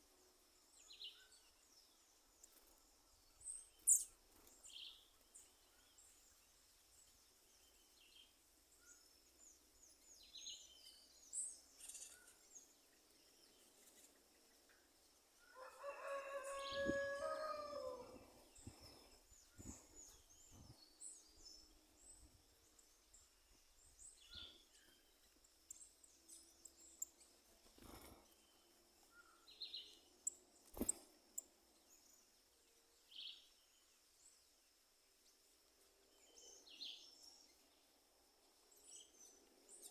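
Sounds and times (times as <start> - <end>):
small birds chirping: 0.0 - 39.9
rooster crowing: 15.5 - 18.2.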